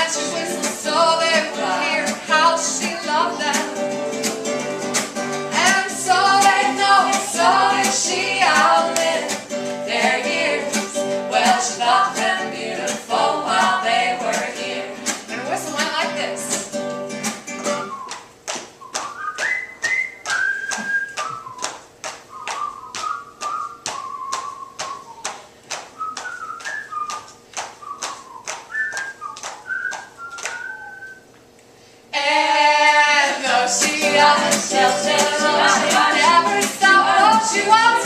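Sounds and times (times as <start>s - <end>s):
string band with singing: 0.0s - 15.2s, 32.2s - 38.0s
whistled melody: 17.6s - 25.4s, 26.0s - 31.4s.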